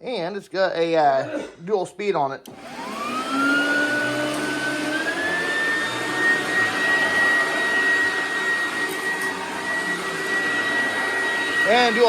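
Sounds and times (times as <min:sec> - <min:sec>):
upright vacuum cleaner running: 0:02.5 - 0:12.0.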